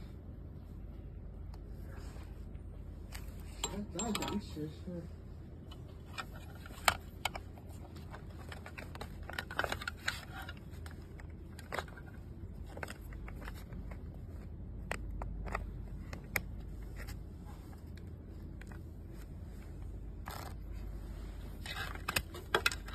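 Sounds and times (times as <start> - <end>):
steady low hum: 0.0 - 22.9
small hard parts clicking and tapping: 3.2 - 4.6, 5.7 - 17.2, 21.6 - 22.9.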